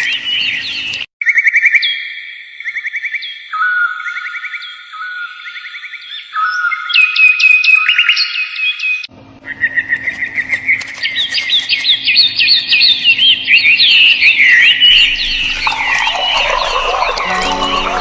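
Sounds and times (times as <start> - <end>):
tonal sound: 15.0 - 18.0.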